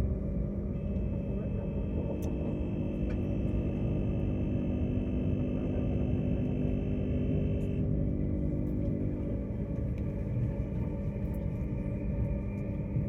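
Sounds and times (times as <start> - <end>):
high whine: 0.7 - 10.2.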